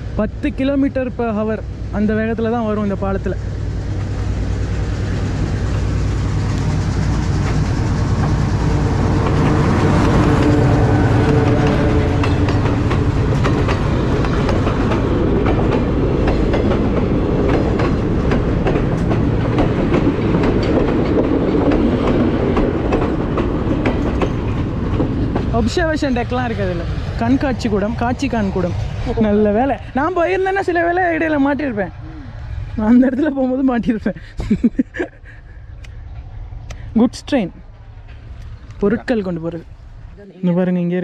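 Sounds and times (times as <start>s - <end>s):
locomotive rumble: 0.0s - 40.4s
train wheels clacking on rails: 3.7s - 31.3s.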